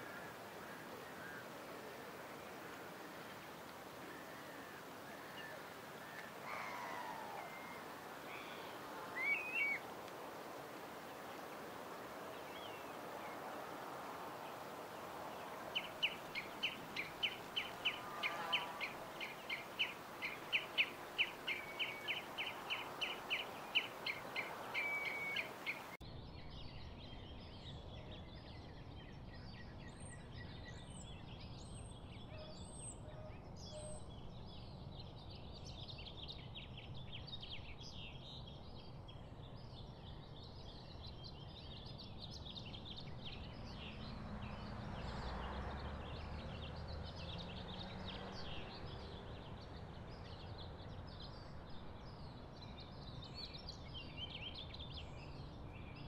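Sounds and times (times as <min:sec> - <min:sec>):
low steady background noise: 0:00.0 - 0:56.0
birds chirping and whistling: 0:06.6 - 0:09.8, 0:15.8 - 0:26.0
bird calling repeated notes: 0:15.8 - 0:26.0.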